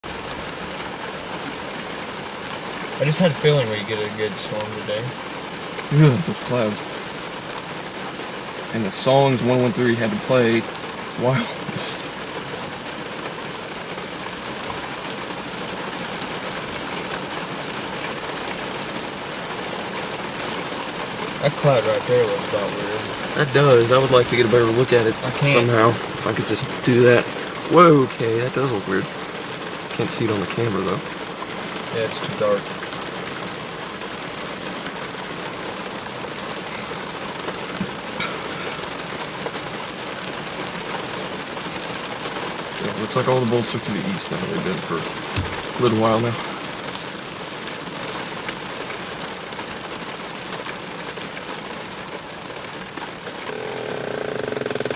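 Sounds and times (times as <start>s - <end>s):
steady rain hiss: 0.0s - 54.9s.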